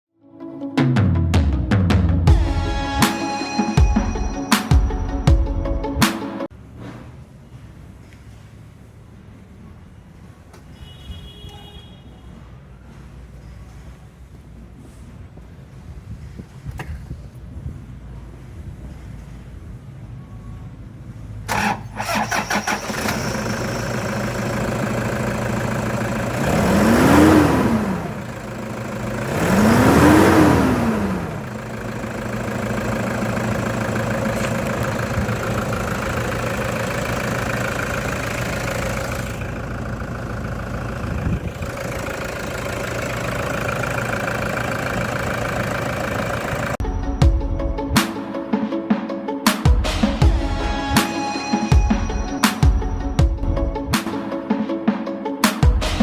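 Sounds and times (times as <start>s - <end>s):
engine cranking and starting: 21.4s - 46.9s
engine idling and revving: 21.5s - 46.9s.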